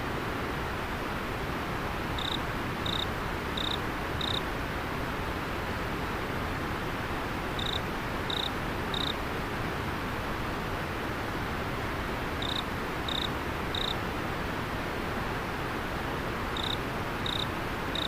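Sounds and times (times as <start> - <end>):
insect chirping: 2.2 - 4.4, 7.6 - 9.1, 12.4 - 14.0, 16.6 - 18.0.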